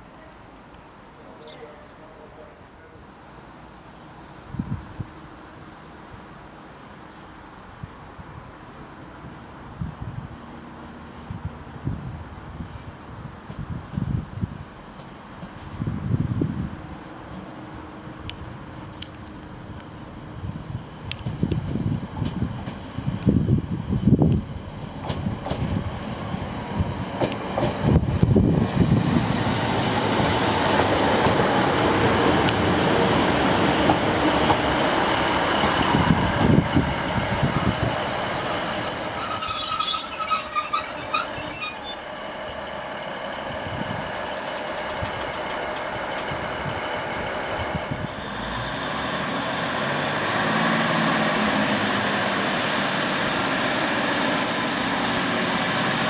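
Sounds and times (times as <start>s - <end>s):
train rumbling on track: 0.0s - 56.0s
high metallic squeal: 38.8s - 42.6s.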